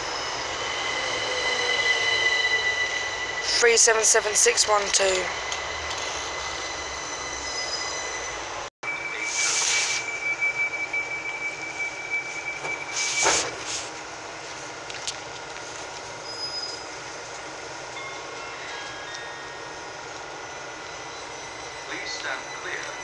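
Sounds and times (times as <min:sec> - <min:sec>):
train brakes squealing: 0:00.0 - 0:14.0, 0:16.1 - 0:17.2, 0:18.0 - 0:23.0
train hum: 0:00.0 - 0:23.0
air hissing: 0:09.2 - 0:10.2, 0:12.9 - 0:14.0.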